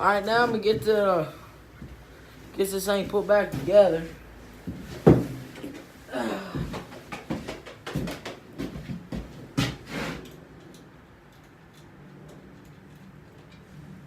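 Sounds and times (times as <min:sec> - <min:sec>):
parts clicking and knocking: 0:06.7 - 0:14.0.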